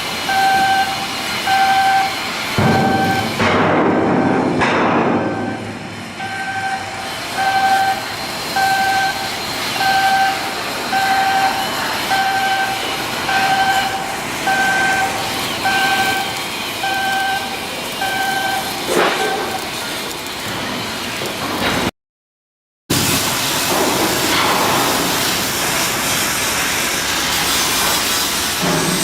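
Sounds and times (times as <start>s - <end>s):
machinery noise: 0.0s - 21.9s, 22.9s - 29.0s
electronic warning beeper: 0.3s - 3.4s, 4.0s - 19.6s.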